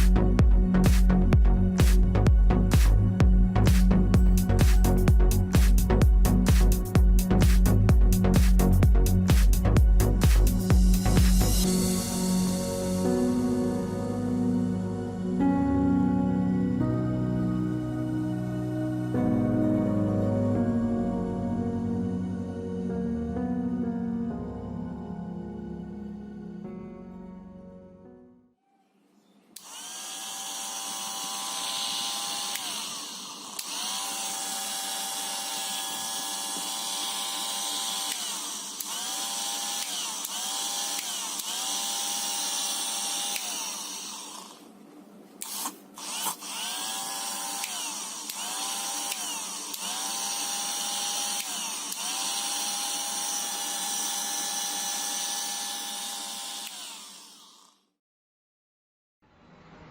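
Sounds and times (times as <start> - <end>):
small electric motor whining: 29.6 - 44.7, 45.4 - 58.0.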